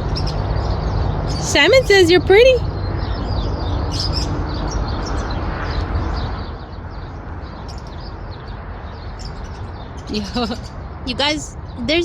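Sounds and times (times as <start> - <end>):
birds chirping: 0.0 - 12.0
steady background noise: 0.0 - 12.0.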